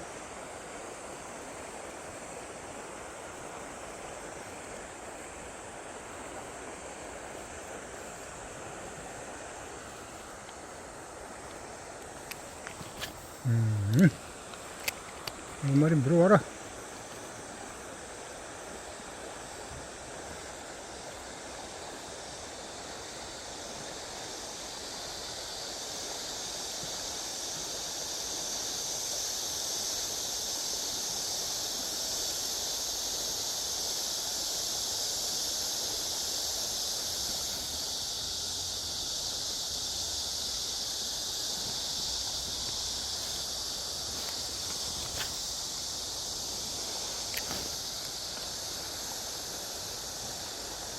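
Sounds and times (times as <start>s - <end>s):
insect chorus: 0.0s - 50.9s
running water: 0.0s - 50.9s
faint ticks: 10.2s - 10.7s, 11.4s - 16.4s, 47.0s - 48.9s.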